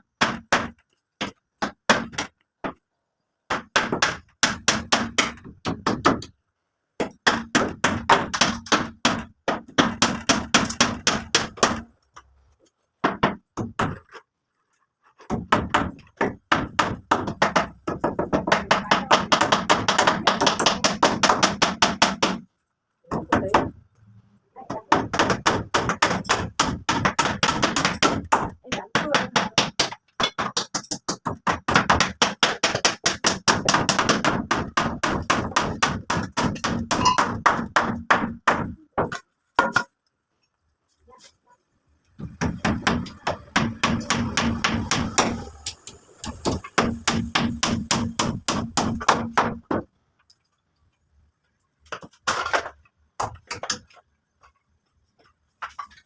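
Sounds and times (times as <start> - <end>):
rapid hammering: 0.2 - 2.8, 3.5 - 6.4, 7.0 - 11.9, 15.3 - 22.5, 24.7 - 39.9, 42.2 - 49.9.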